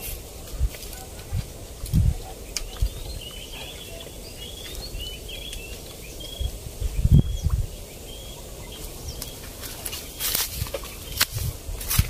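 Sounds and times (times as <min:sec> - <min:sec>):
microphone bumps and rumble: 0:00.0 - 0:03.3, 0:06.3 - 0:07.7
small birds chirping: 0:00.0 - 0:12.0.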